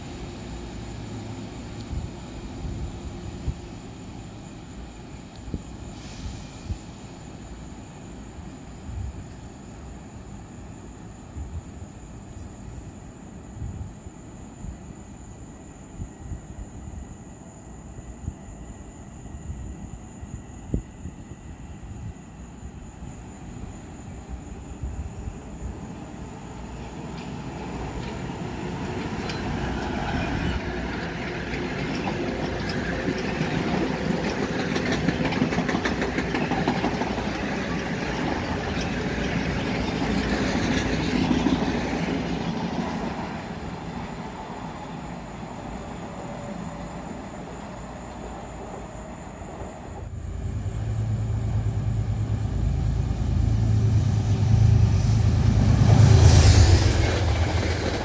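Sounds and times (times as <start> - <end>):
low rumble of approaching train: 0.0 - 58.0
train wheels rumbling and clicking: 25.6 - 45.2, 49.4 - 58.0.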